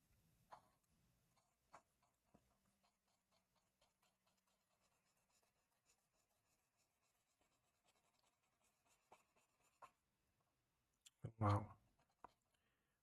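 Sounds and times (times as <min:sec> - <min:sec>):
pencil scratching on paper: 0:00.5 - 0:10.1, 0:11.9 - 0:12.5.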